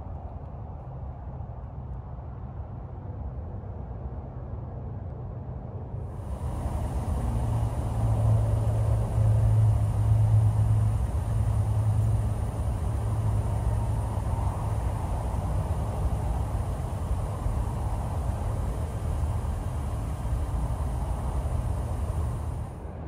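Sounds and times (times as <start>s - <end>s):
car engine idling: 6.1s - 22.8s.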